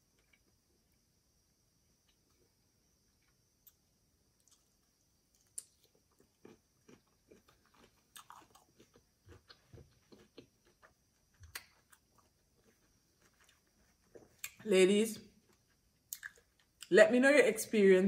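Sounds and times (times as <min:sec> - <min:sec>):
faint chewing mouth clicks: 0:15.5 - 0:16.9.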